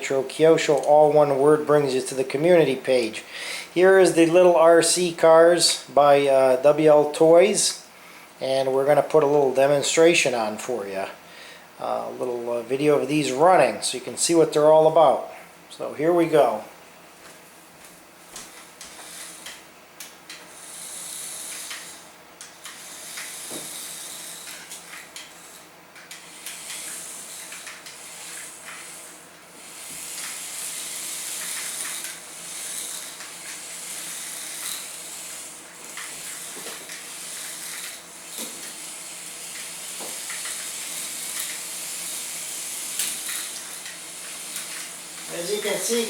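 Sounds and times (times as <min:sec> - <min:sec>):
toy car electric motors whirring: 0:18.3 - 0:46.0.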